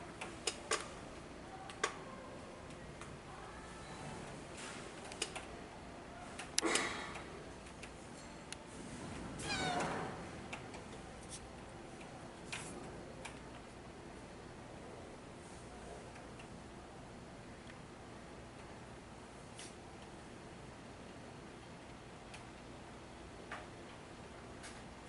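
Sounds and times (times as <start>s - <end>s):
cat meowing: 9.4s - 10.1s.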